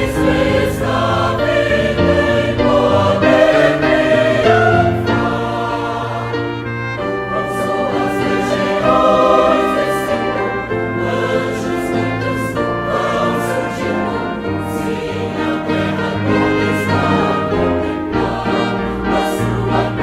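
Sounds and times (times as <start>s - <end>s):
brass ensemble: 0.0s - 20.0s
choir singing a hymn: 0.0s - 20.0s.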